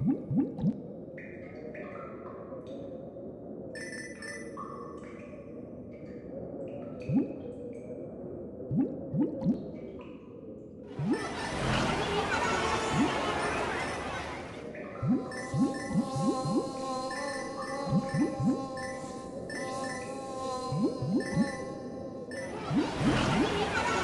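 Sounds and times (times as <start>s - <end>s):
cartoon background music: 11.0s - 14.3s, 15.0s - 24.0s.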